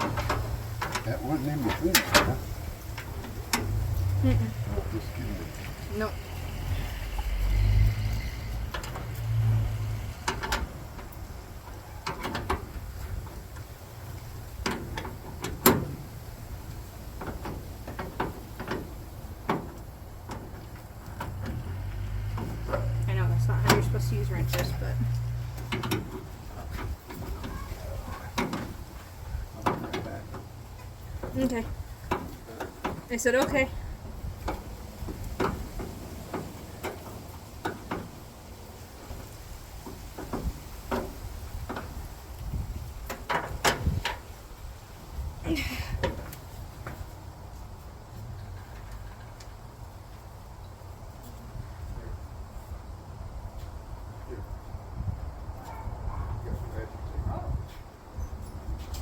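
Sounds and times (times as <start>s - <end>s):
low steady rumble: 0.0s - 46.0s.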